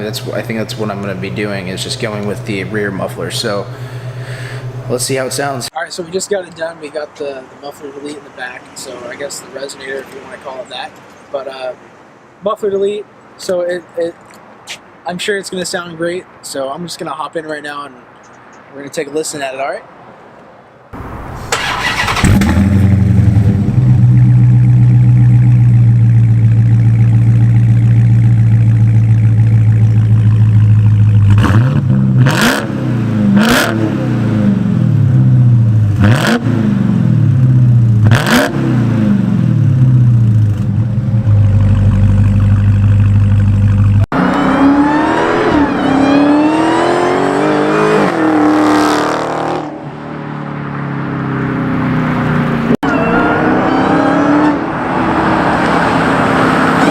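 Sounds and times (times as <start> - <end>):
car engine revving: 0.0 - 5.7, 21.0 - 56.9
car engine starting and idling: 0.0 - 5.7, 21.0 - 46.8.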